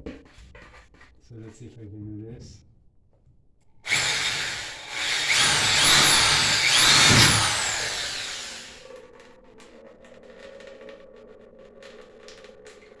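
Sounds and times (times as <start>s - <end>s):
power drill boring into metal: 3.9s - 8.8s.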